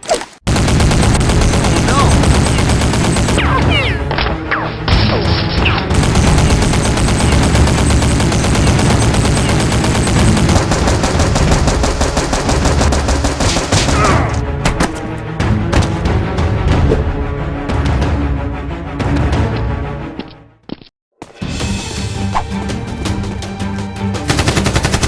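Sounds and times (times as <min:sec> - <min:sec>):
automatic gunfire: 0:00.5 - 0:03.7, 0:05.9 - 0:14.2, 0:24.3 - 0:25.0
background music: 0:00.8 - 0:20.6, 0:21.2 - 0:25.0.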